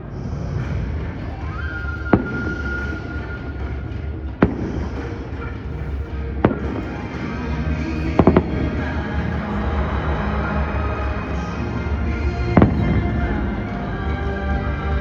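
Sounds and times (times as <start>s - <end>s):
fireworks bangs: 0.0s - 13.9s
background music: 0.0s - 15.0s.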